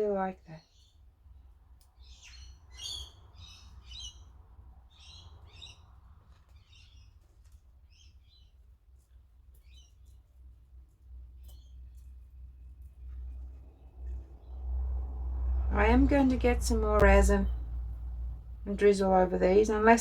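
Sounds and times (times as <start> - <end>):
faint bird chirping: 0.5 - 10.3, 11.3 - 14.7
steady low hum: 10.6 - 20.0.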